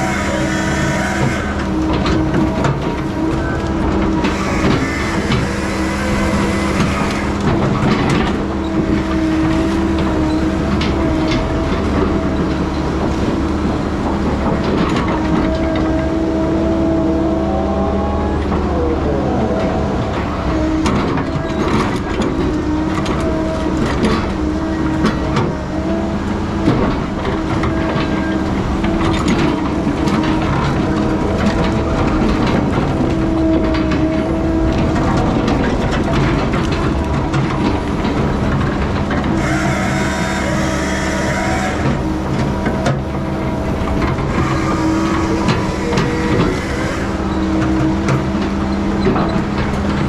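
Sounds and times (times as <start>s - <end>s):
diesel logging machine running: 0.0s - 50.0s
metal clanks and knocks: 20.6s - 50.0s.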